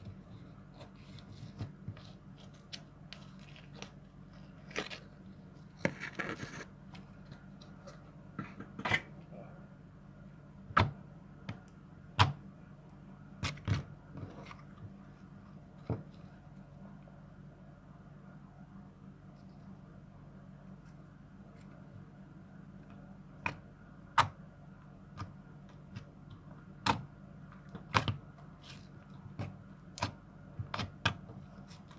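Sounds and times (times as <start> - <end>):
faint low hum: 0.0 - 31.9.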